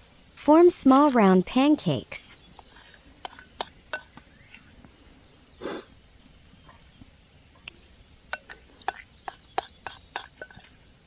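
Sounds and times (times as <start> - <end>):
wood fire crackling: 2.5 - 10.1.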